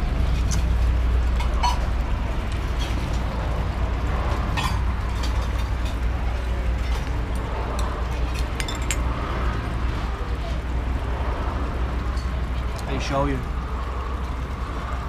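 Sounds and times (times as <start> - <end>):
low rumble of eatery: 0.0 - 15.0
utensils clinking on bowls: 1.4 - 1.9, 4.5 - 6.0, 7.8 - 9.1.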